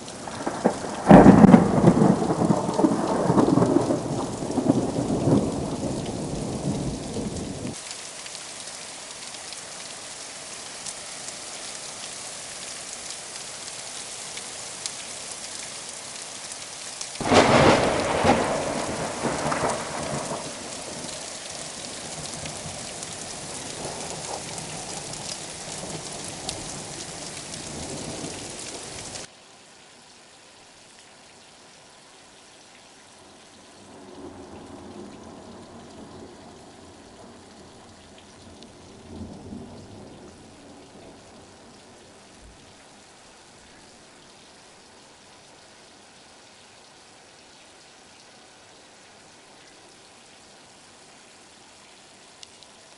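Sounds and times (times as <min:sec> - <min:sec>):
heavy rain hissing: 0:00.0 - 0:29.3, 0:33.3 - 0:46.4
rumbling thunder: 0:00.2 - 0:07.8, 0:17.2 - 0:28.4
loud thunderclap: 0:00.3 - 0:07.7, 0:17.2 - 0:21.2.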